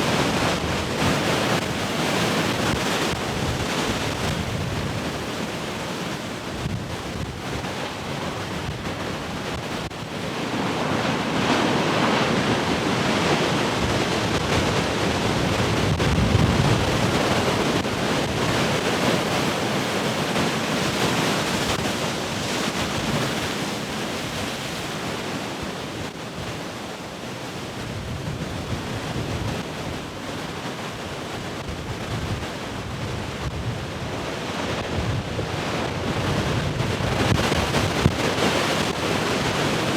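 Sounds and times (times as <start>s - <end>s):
ocean surf breaking: 0.0s - 26.6s, 27.3s - 39.9s
wind buffeting microphone: 12.2s - 20.8s, 31.5s - 39.9s.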